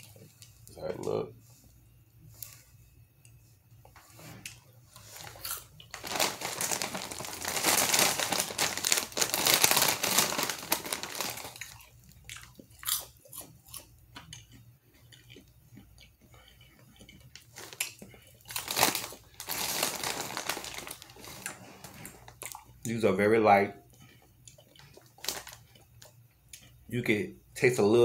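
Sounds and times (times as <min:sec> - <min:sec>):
chewing popcorn crunches: 0:04.5 - 0:23.0, 0:23.8 - 0:27.0
snack bag crinkling: 0:05.0 - 0:15.5, 0:17.0 - 0:22.8, 0:24.5 - 0:26.2.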